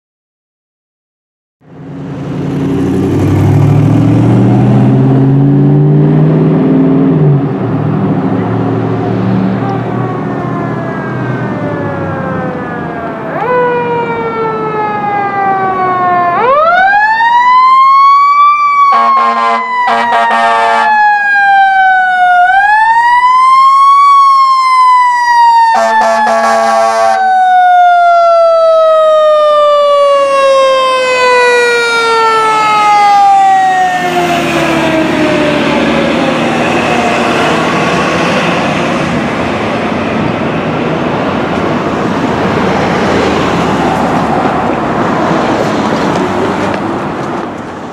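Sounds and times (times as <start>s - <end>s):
fire engine running: 1.6s - 47.9s
fire engine siren wailing: 1.6s - 47.9s
air horn blasts: 18.9s - 21.0s, 25.7s - 27.2s.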